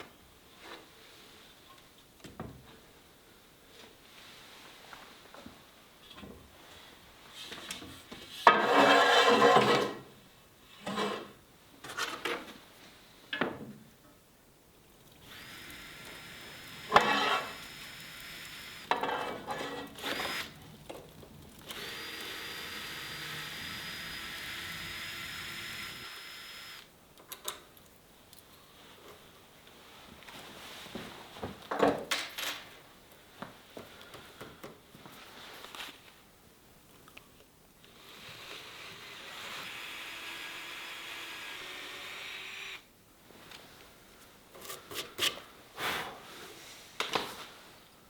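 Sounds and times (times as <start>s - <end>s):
loud rasping scrape: 8.5s - 9.8s, 16.9s - 17.6s
power tool motor running: 21.7s - 26.8s, 38.1s - 42.8s.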